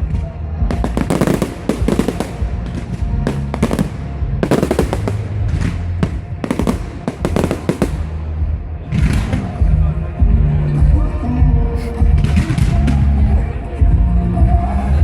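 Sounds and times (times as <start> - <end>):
fireworks bangs and crackles: 0.0 - 10.3, 12.1 - 13.4
music with bass line: 0.0 - 15.0.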